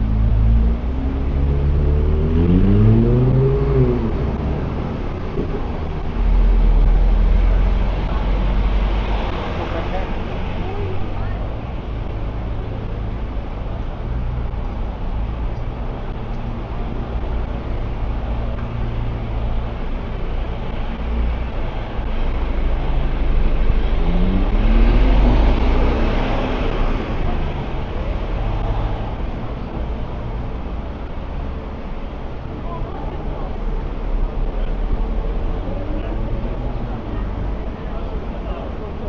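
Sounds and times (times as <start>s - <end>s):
vehicle accelerating past: 0.0s - 10.6s, 22.7s - 29.2s
street traffic rumble: 0.0s - 39.0s.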